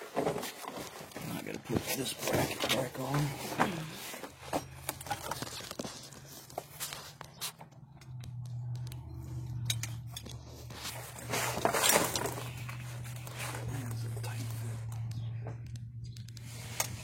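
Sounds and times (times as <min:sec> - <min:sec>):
metal bracket and tools clicking: 0:08.3 - 0:10.5
loud scraping rustle: 0:10.4 - 0:14.7.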